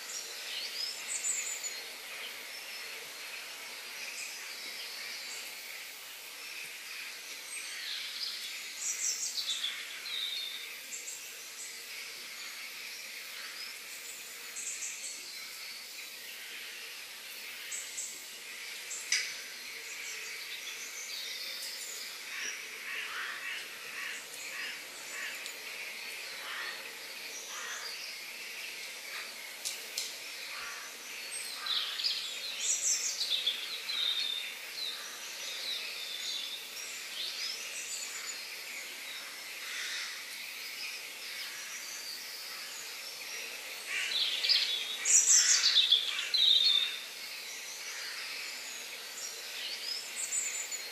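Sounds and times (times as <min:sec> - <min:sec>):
steady background hiss: 0:00.0 - 0:50.9
birds chirping and calling: 0:43.9 - 0:48.9.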